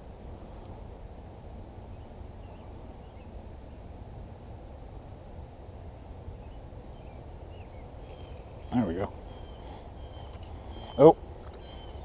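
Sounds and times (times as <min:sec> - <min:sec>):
low outdoor rush: 0:00.0 - 0:12.0
faint bird chirps: 0:06.4 - 0:12.0.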